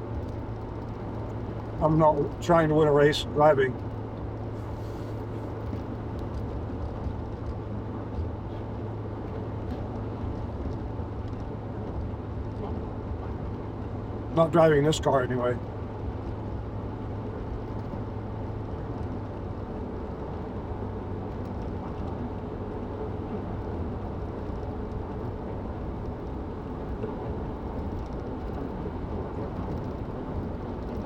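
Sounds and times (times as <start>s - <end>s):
car engine and tyre drone: 15.6s - 31.0s.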